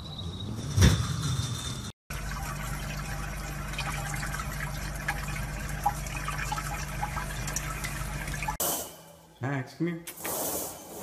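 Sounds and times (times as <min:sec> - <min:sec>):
tap water running: 0:02.1 - 0:08.6.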